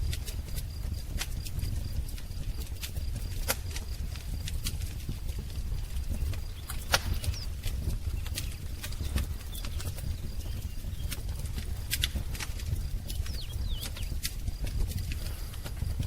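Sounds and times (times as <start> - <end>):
low rumble of flames: 0.0 - 16.0
wood fire crackling: 0.0 - 16.0
faint bird chirping: 5.8 - 14.4.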